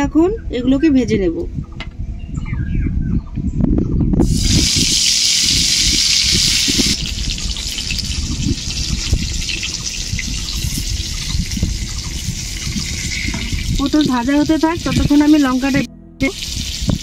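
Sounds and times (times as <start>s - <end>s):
vegetables sizzling in hot oil: 4.2s - 17.0s.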